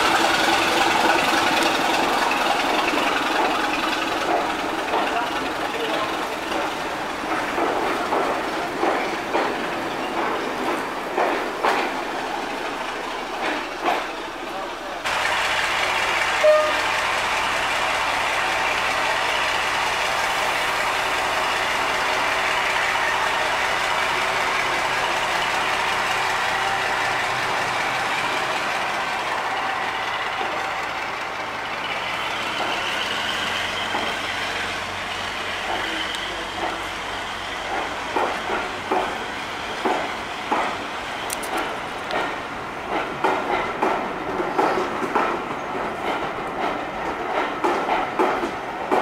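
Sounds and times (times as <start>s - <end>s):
wheels clicking over rail joints: 0.0s - 14.4s, 35.6s - 37.0s, 37.6s - 39.2s, 39.8s - 49.0s
train coaches rolling past: 0.0s - 49.0s
loud high-pitched note: 16.4s - 16.9s.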